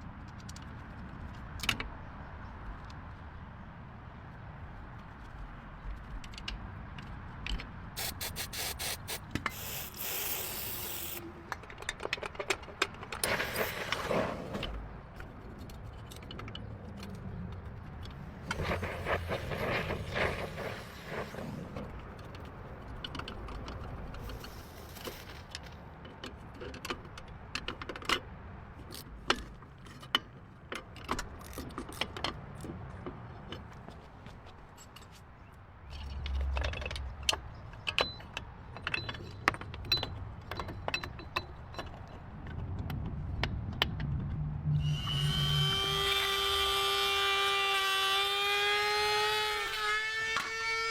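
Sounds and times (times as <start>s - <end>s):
hand tool clicks and clanks on metal: 4.9s - 44.4s.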